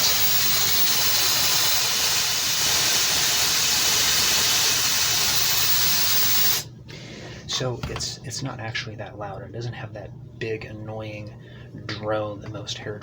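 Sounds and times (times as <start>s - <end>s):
hair dryer air rush: 0.0s - 6.7s.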